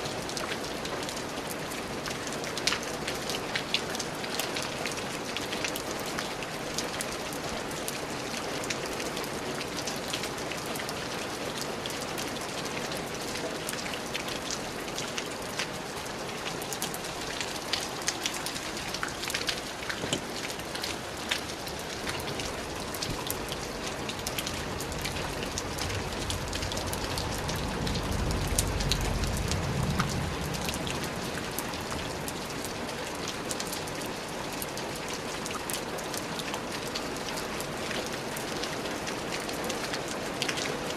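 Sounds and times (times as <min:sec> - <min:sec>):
raindrops ticking close by: 0:00.0 - 0:40.9
steady rain falling: 0:00.0 - 0:40.9
low rumble: 0:24.9 - 0:31.2.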